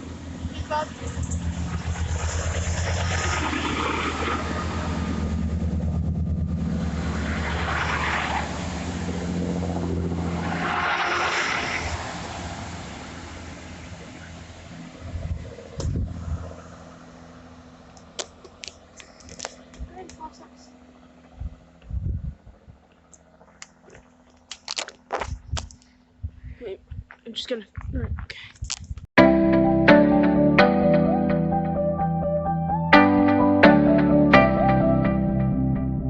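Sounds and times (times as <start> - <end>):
train diesel engine running: 0.0 - 8.0, 8.6 - 21.3
train wheels rushing: 0.7 - 5.4.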